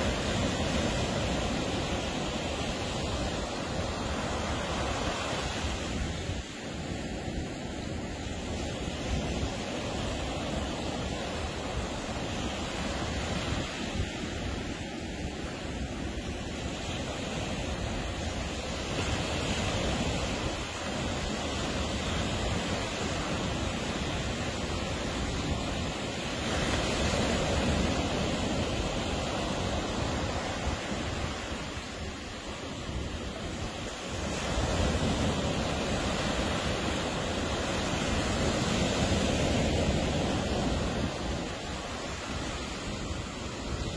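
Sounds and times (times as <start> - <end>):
surf waves breaking: 0.0 - 43.9.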